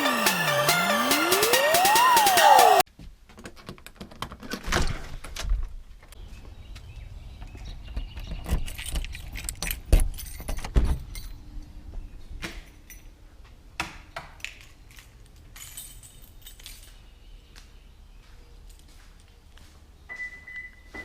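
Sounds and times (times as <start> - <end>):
metallic jingling and clicking: 8.6 - 11.4, 14.4 - 17.1.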